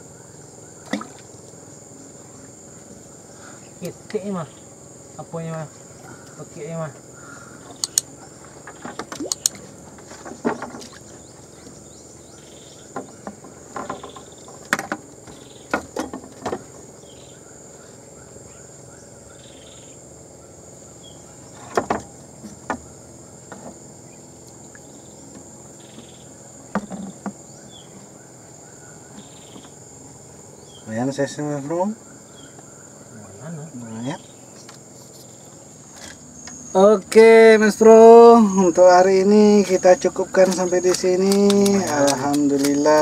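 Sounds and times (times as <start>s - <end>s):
high-pitched insect drone: 0.0s - 43.0s
handling clicks and knocks: 39.6s - 43.0s.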